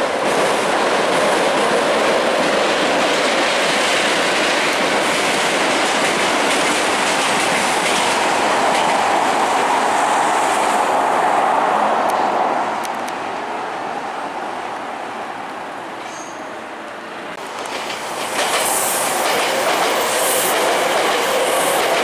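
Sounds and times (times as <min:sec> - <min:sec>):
electric train passing: 0:00.0 - 0:22.0.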